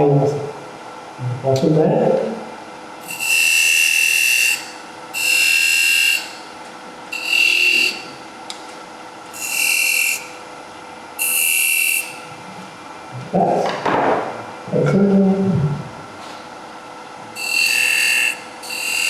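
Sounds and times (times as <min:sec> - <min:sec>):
lathe tool squealing on wood: 0:03.0 - 0:06.5, 0:07.1 - 0:08.2, 0:09.3 - 0:10.4, 0:11.2 - 0:12.3, 0:17.4 - 0:19.0.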